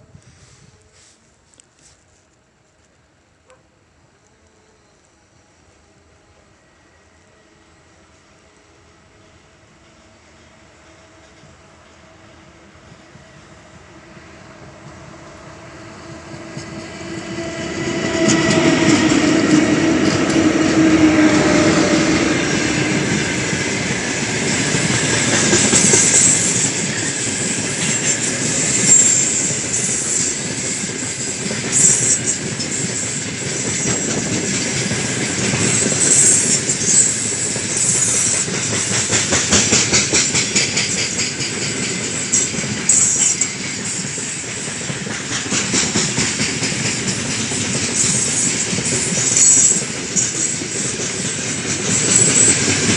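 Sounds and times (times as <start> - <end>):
wheels clicking over rail joints: 18.2 - 52.9
high wheel squeals: 24.5 - 38.8, 42.1 - 44.8, 47.9 - 52.9.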